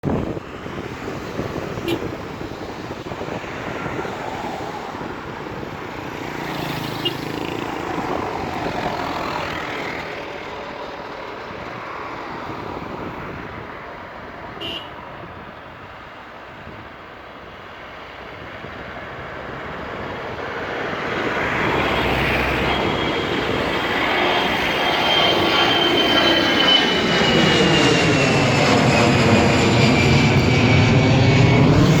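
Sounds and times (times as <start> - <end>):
jet engines rushing: 0.0 - 32.0
high engine whine: 19.4 - 32.0.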